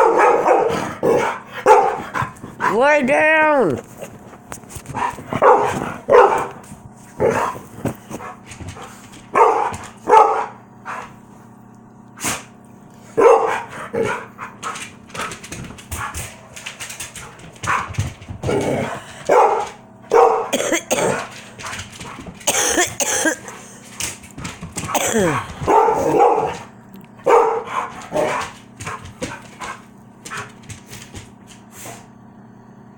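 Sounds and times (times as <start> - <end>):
dogs barking: 0.0 - 2.7, 4.9 - 7.6, 8.2 - 11.1, 13.1 - 30.7.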